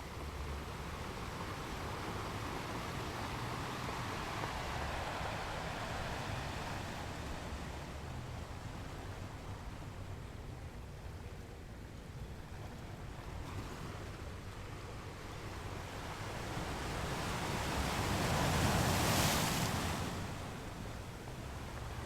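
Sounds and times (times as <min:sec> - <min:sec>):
surf washing on beach: 0:00.0 - 0:10.7, 0:12.8 - 0:22.0.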